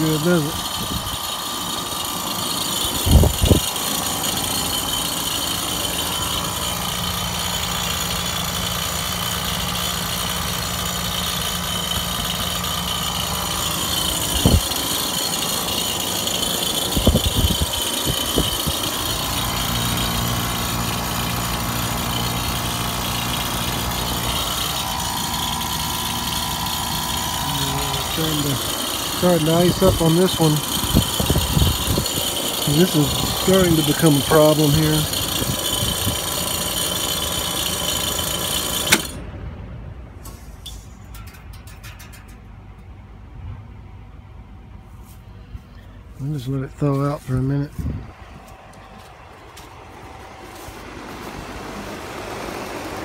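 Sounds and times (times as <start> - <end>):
air conditioner humming: 13.0 - 36.1.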